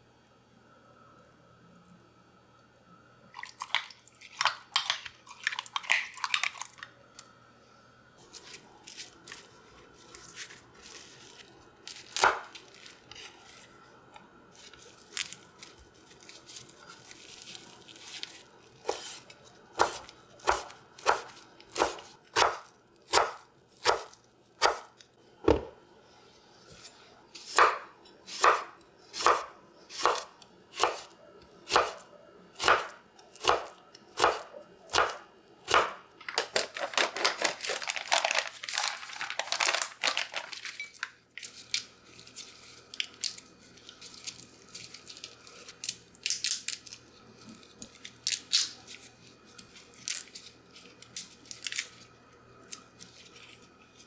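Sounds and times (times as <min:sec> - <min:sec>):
crackly rustling: 0:08.2 - 0:19.7, 0:36.2 - 0:52.0
knife chopping on cutting board: 0:12.2 - 0:12.5, 0:19.8 - 0:24.9, 0:25.5 - 0:25.8, 0:27.4 - 0:31.1, 0:31.7 - 0:32.0, 0:32.6 - 0:36.0.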